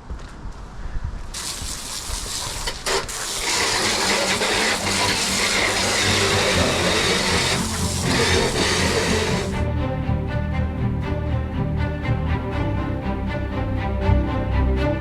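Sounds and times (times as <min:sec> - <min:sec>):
garden hose spraying water: 0:01.3 - 0:09.6.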